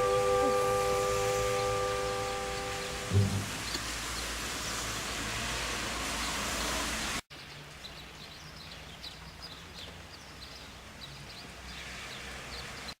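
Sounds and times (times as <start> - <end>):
loud noisy haze: 0.0 - 6.0
steady outdoor background: 0.0 - 13.0.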